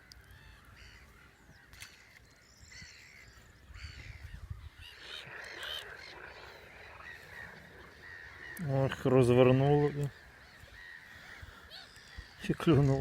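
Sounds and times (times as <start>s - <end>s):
faint bird chirping: 0.0s - 13.0s.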